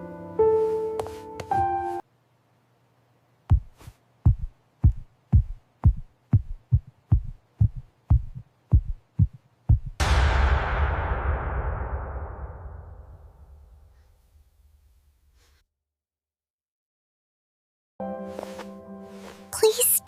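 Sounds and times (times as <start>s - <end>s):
piano music: 0.0s - 2.0s, 18.0s - 20.0s
heartbeat thumps: 3.5s - 10.0s
loud crashing hit: 10.0s - 14.0s.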